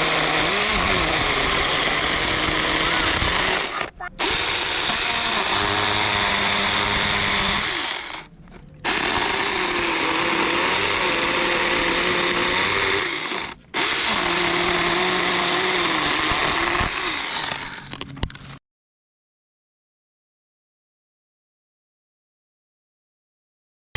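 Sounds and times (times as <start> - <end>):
mini chainsaw running: 0.0 - 18.1.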